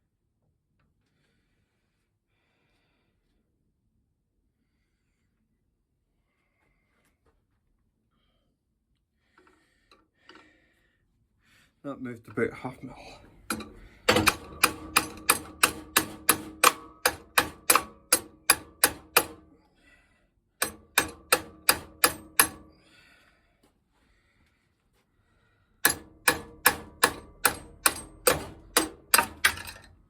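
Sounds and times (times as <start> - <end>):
hammer tapping on metal rod: 13.5 - 19.5, 20.6 - 22.8, 25.8 - 29.8.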